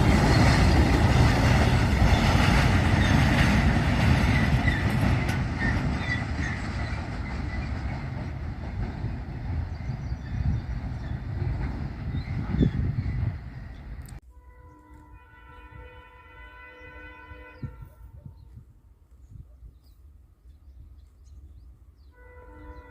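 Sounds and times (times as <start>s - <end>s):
train rumbling past: 0.0s - 17.7s.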